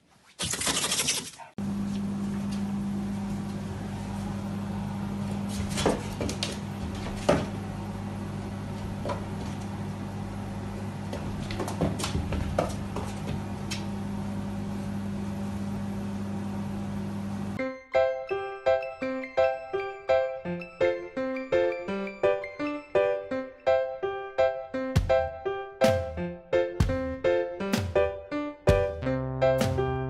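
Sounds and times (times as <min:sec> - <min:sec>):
machine hum: 0:01.6 - 0:17.6.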